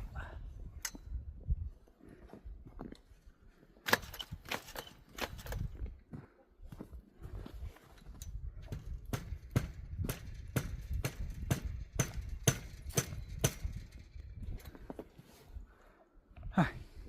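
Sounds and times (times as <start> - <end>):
footsteps in snow: 6.1 - 8.2.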